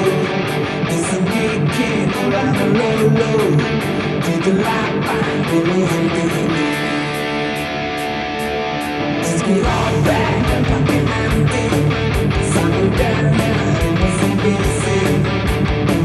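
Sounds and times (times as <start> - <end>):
distorted electric guitar: 0.0 - 16.0
rock backing track with drums: 0.0 - 16.0
bass and kick drum: 9.6 - 16.0.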